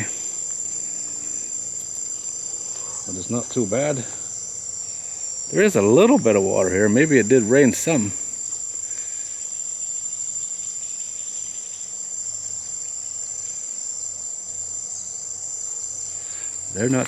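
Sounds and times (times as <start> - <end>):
faint highway traffic hum: 0.0 - 9.5, 14.4 - 17.0
insects trilling: 0.0 - 17.0.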